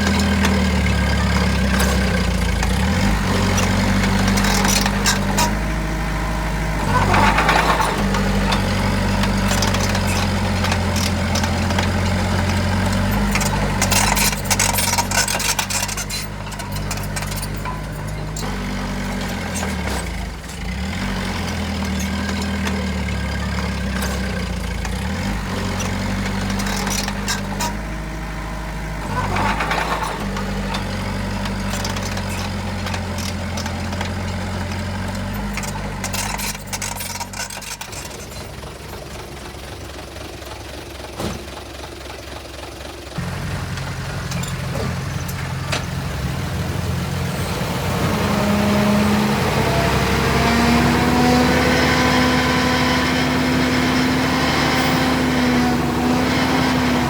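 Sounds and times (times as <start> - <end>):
clattering noise: 0.0 - 5.7, 6.8 - 28.0, 29.0 - 39.4, 43.2 - 46.3
diesel engine idling: 0.0 - 57.0.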